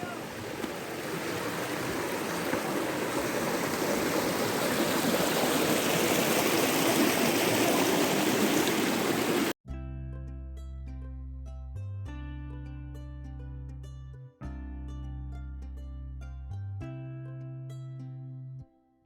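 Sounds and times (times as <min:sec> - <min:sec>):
mountain stream rushing water: 0:00.0 - 0:09.6.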